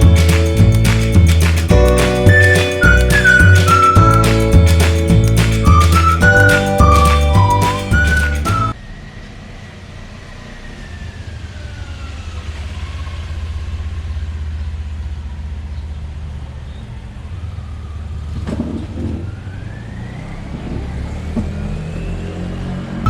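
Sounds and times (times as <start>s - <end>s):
low vehicle rumble: 0.0s - 15.7s.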